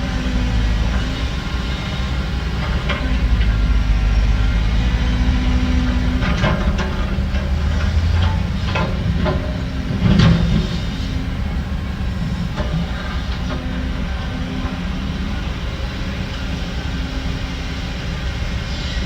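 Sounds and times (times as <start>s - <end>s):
heavy diesel machinery running: 0.0s - 19.0s
metallic clanks and rattles: 5.8s - 13.6s.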